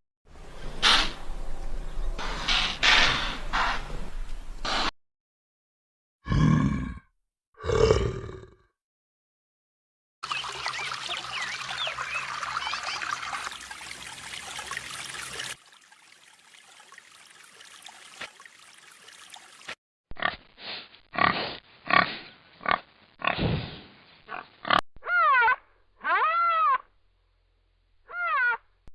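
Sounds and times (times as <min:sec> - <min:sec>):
pig grunting: 0:06.2 - 0:08.7, 0:21.2 - 0:23.7
small birds chirping: 0:10.2 - 0:15.5.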